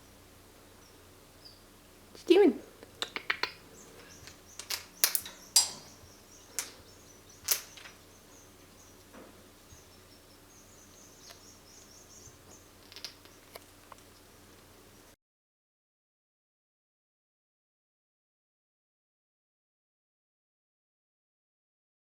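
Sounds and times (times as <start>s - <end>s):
faint bird chirping: 0.0s - 15.2s
sharp clicks and taps: 2.1s - 8.0s.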